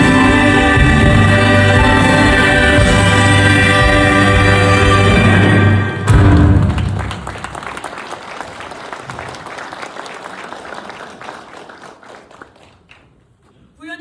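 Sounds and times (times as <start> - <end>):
audience applauding: 5.8 - 13.5.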